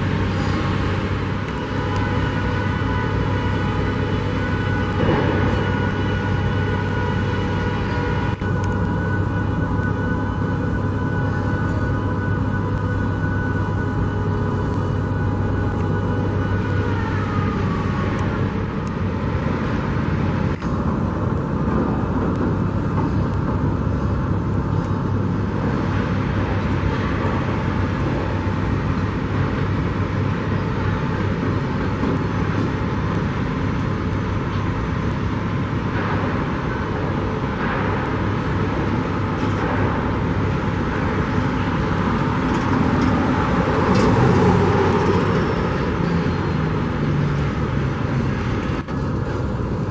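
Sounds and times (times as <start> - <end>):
road traffic hum: 0.0 - 49.9
vehicle passing: 42.2 - 49.9.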